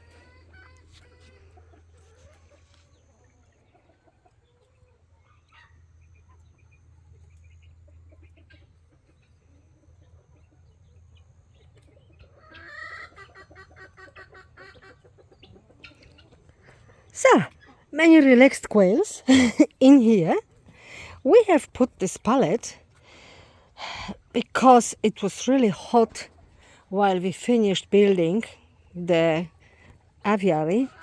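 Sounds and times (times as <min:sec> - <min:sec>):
quails clucking and calling: 0:00.0 - 0:17.9.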